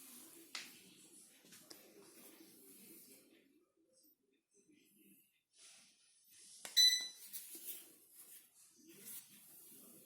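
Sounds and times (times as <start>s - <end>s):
short high beep: 6.8s - 7.2s.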